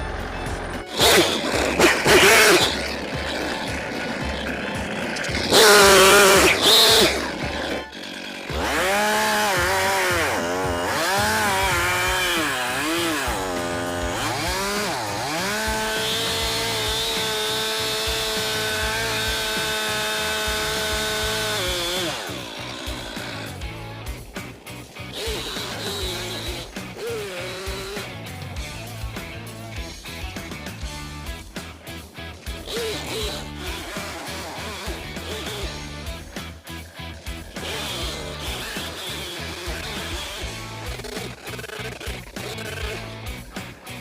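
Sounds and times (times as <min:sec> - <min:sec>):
chainsaw revving: 0:00.0 - 0:44.0.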